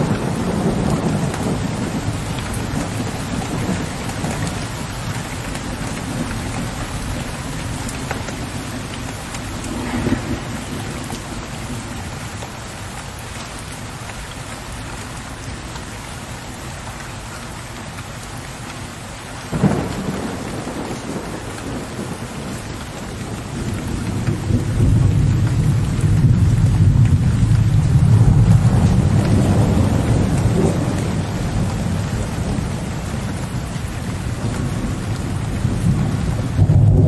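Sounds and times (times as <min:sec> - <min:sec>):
deep low thunder rumble: 0:00.0 - 0:05.1, 0:09.3 - 0:11.9, 0:19.5 - 0:37.0
thunderclap: 0:00.0 - 0:12.0, 0:19.5 - 0:37.0
steady rain falling: 0:00.0 - 0:37.0.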